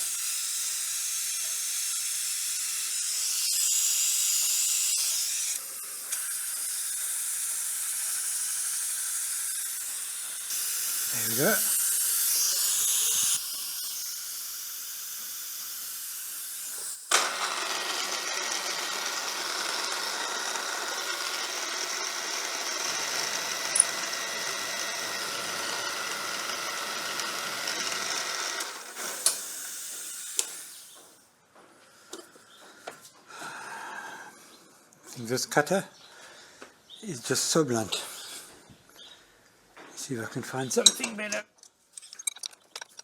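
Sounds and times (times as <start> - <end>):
milling machine cutting metal: 16.8 - 30.7.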